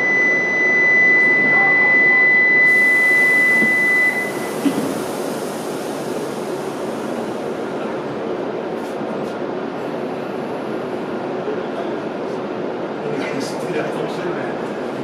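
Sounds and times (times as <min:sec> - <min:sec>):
high electronic beep: 0:00.0 - 0:04.6
train rushing noise: 0:02.7 - 0:15.0.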